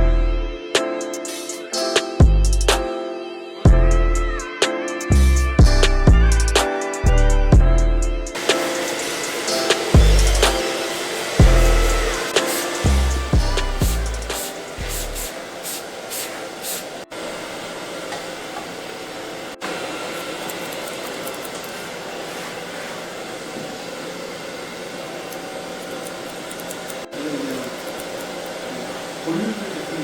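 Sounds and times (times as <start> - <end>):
background music with a beat: 0.0 - 15.3
hair dryer blowing: 8.4 - 30.0.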